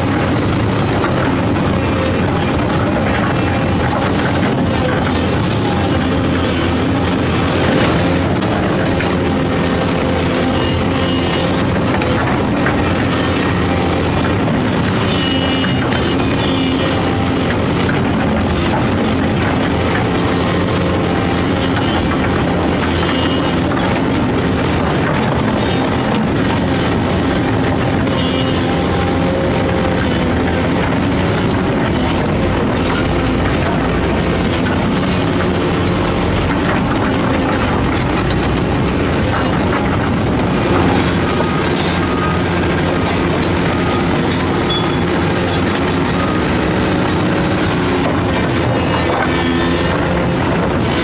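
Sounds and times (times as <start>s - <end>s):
excavator diesel engine droning: 0.0s - 51.0s
high metallic squeals: 40.5s - 48.0s.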